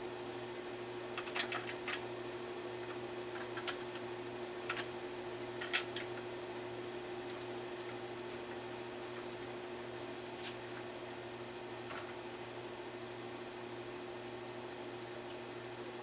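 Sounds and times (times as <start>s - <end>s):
air conditioner humming: 0.0s - 16.0s.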